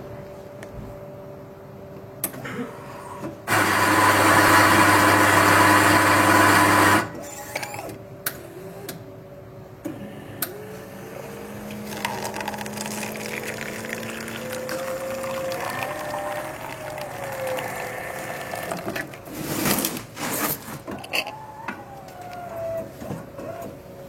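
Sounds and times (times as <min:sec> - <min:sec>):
small electric machine running: 0:11.2 - 0:19.1.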